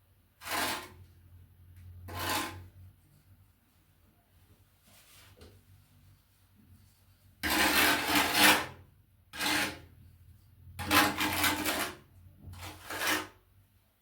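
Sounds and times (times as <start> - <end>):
trowel scraping adhesive on tile: 0.4 - 1.1, 1.8 - 2.8, 7.4 - 10.0, 10.7 - 13.4.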